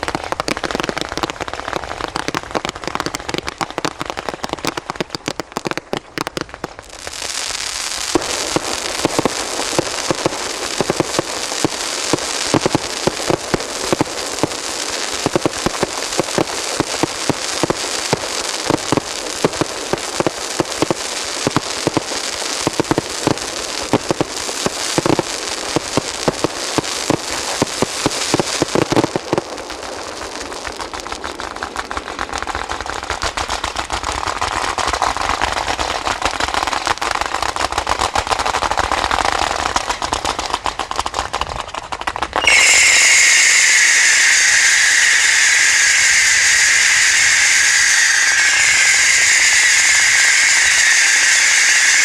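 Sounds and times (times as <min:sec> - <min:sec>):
fireworks bangs: 0:00.0 - 0:52.0
fireworks crackle: 0:00.0 - 0:52.0
loud steady hiss: 0:07.0 - 0:30.2, 0:42.4 - 0:52.0.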